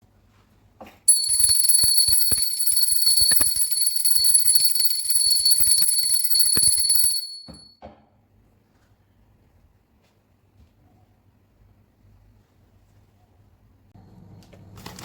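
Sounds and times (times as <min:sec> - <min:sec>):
alarm bell ringing: 0:01.1 - 0:07.7.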